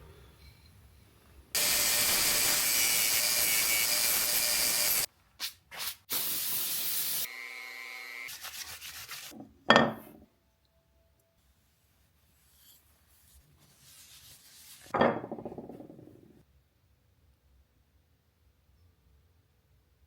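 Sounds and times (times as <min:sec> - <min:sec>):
belt sander grinding wood: 0:01.6 - 0:05.1.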